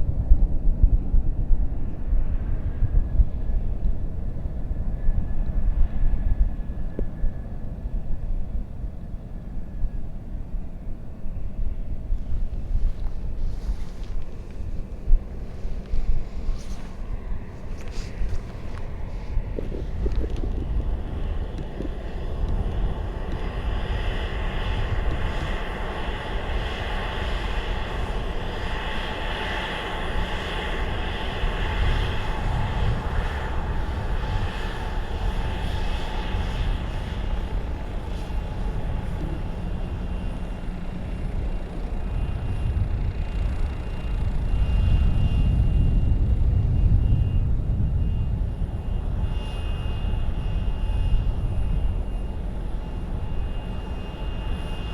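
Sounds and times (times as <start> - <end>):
jet engines whining and rumbling: 0.0 - 54.9
wind on microphone: 0.0 - 54.9.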